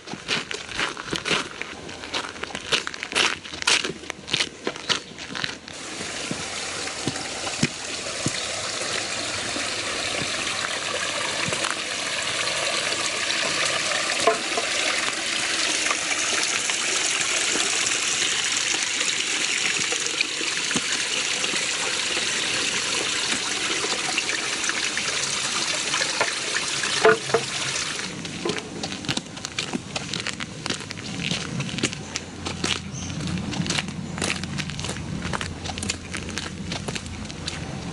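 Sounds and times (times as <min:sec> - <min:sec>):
running water rushing: 0:05.8 - 0:29.9.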